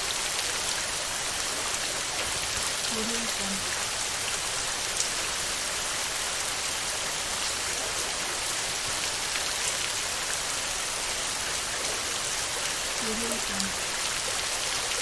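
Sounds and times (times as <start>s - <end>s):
heavy rain on a metal roof: 0.0s - 15.0s
raindrop ticks: 13.0s - 14.3s.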